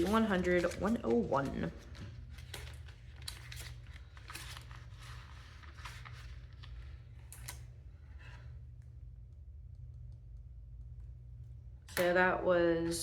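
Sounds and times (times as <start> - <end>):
banknotes rustling: 0.0 - 8.5
steady low hum: 0.0 - 13.0.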